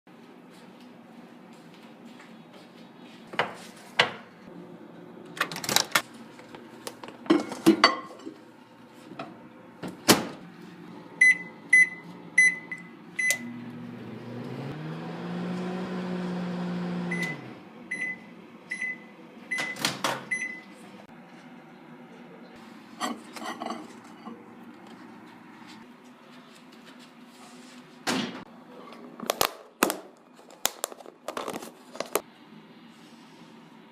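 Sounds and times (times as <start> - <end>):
microwave oven humming: 4.5 - 25.8
microwave short beeps: 11.2 - 13.6, 17.1 - 20.7.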